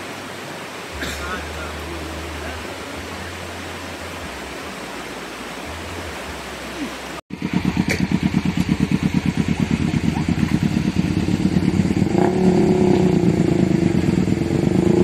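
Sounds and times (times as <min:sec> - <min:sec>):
flowing water rushing: 0:00.0 - 0:15.0
small engine running: 0:07.3 - 0:15.0.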